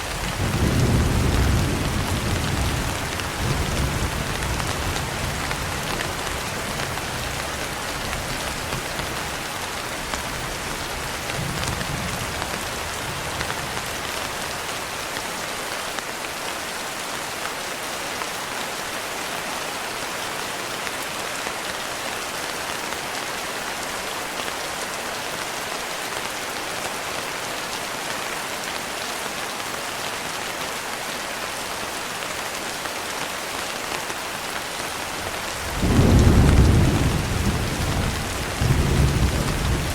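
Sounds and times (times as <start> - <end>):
heavy rain falling: 0.0 - 39.9
low thunder rumble: 35.6 - 39.9.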